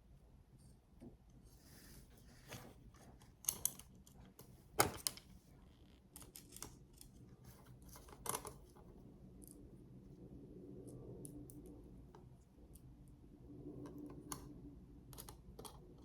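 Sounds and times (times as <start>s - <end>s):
small clicks and taps of screws: 3.2s - 5.3s.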